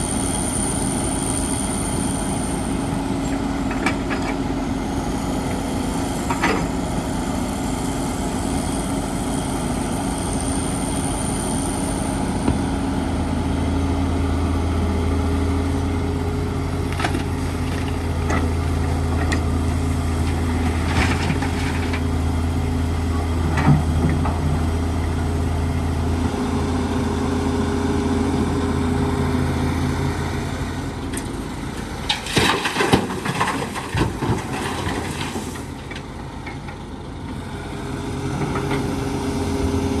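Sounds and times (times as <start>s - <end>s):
diesel engine droning: 0.0s - 40.0s.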